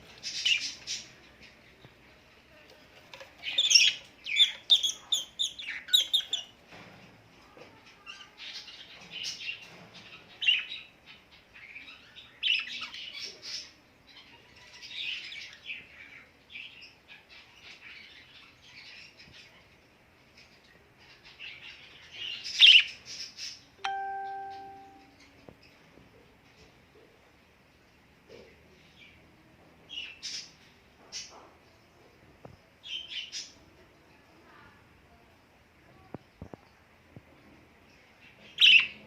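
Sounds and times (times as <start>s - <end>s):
birds chirping and calling: 3.2s - 6.6s, 38.2s - 39.0s.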